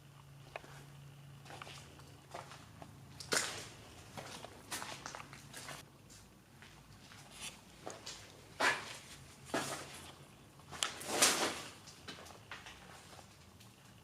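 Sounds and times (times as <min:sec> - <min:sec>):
footsteps scuffing on hard floor: 0:03.3 - 0:10.1.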